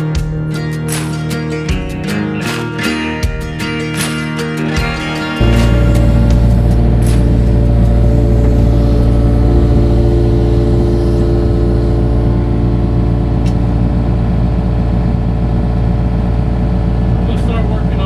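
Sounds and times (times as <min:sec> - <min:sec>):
digging machine engine running: 0:05.4 - 0:18.0.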